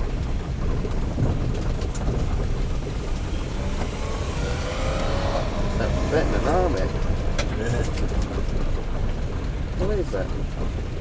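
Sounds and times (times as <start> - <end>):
vehicle rumbling on the move: 0.0 - 11.0
faint rising whine: 1.6 - 9.5.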